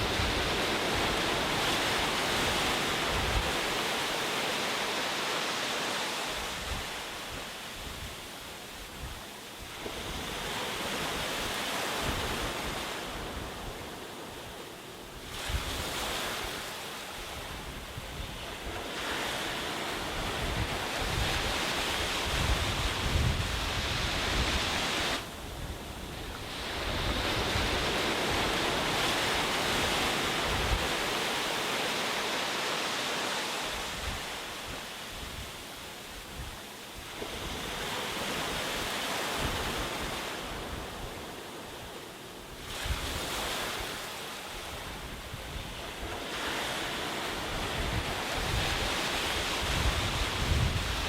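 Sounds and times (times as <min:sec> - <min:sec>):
sea waves washing onto beach: 0:00.0 - 0:51.0.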